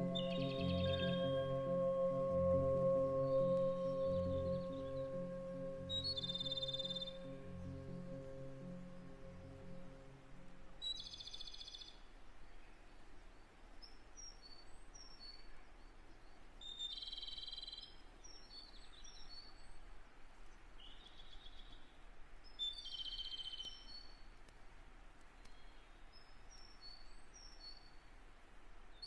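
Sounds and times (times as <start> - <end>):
low musical tone: 0.0 - 10.9
background hiss: 0.0 - 29.0.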